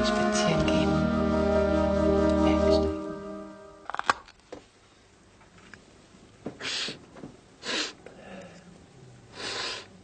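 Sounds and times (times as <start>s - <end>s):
person exhaling breathily: 9.3s - 10.0s.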